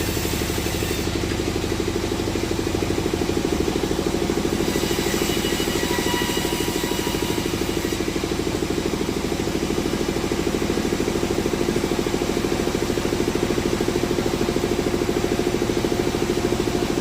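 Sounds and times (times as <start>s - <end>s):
engine running with rapid pulse: 0.0s - 17.0s.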